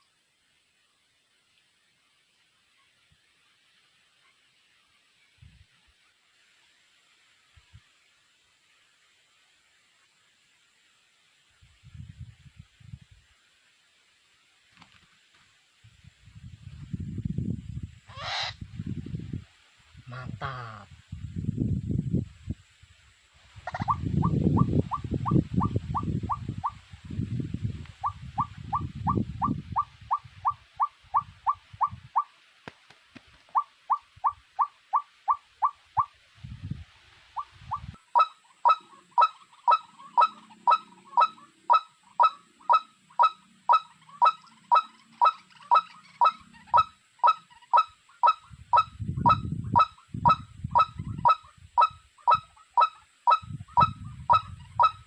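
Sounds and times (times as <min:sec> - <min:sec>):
low handling or wind rumbles: 0:15.8 - 0:34.6, 0:35.8 - 0:38.0, 0:48.4 - 0:51.8, 0:53.4 - 0:55.0
bird call: 0:33.5 - 0:36.1, 0:37.4 - 0:55.0.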